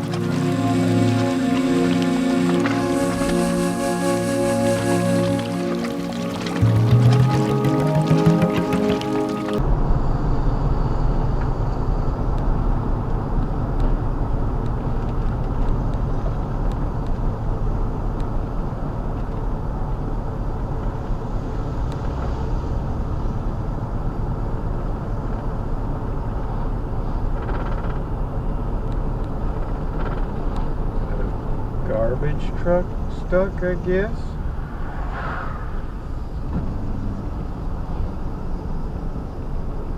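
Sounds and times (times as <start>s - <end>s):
vehicle engine rumbling: 0.0s - 9.6s, 34.2s - 39.9s.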